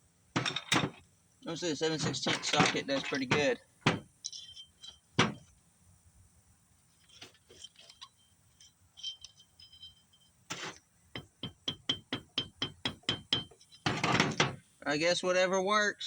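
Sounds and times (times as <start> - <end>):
metal tapping and clinking: 0.4 - 1.0, 1.9 - 5.5, 7.0 - 14.7.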